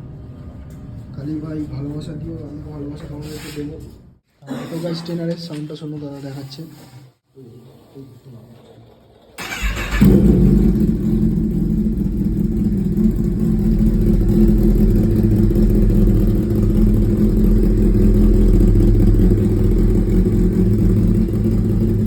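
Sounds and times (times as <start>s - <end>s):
motorcycle engine idling: 9.4s - 22.0s.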